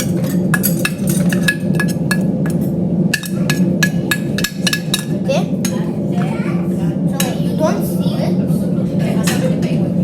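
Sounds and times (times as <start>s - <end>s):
metal spoon clinking on pan: 0.0s - 5.2s
steady low hum: 0.0s - 10.0s.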